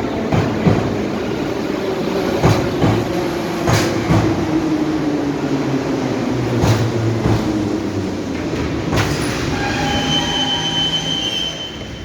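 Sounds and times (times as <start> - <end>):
metro train rumble: 0.0 - 12.0
high-pitched squeal: 9.2 - 12.0.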